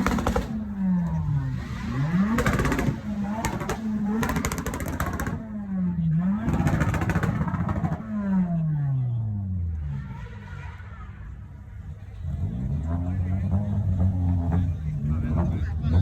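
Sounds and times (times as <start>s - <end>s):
car engine revving: 0.0s - 16.0s
exhaust crackling: 0.0s - 16.0s.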